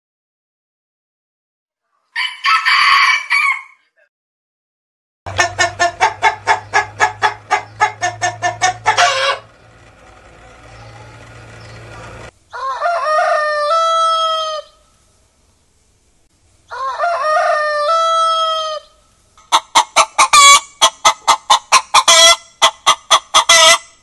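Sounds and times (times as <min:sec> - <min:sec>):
rooster crowing: 0:02.2 - 0:03.9, 0:05.3 - 0:09.6, 0:12.5 - 0:14.8, 0:16.7 - 0:18.9
chicken clucking: 0:05.3 - 0:09.7, 0:17.6 - 0:24.0.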